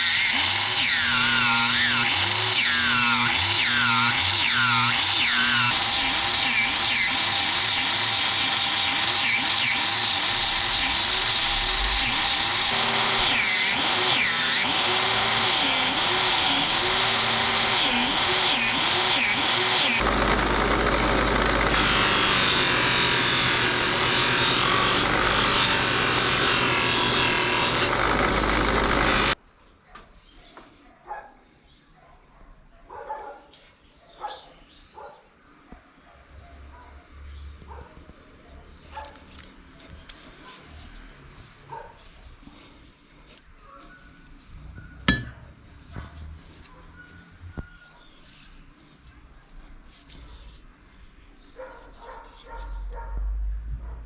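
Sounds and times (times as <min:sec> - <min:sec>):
electric grinder on steel: 0:00.0 - 0:29.4
dog barking: 0:29.9 - 0:39.3, 0:41.7 - 0:42.0, 0:44.8 - 0:48.0, 0:51.6 - 0:54.0.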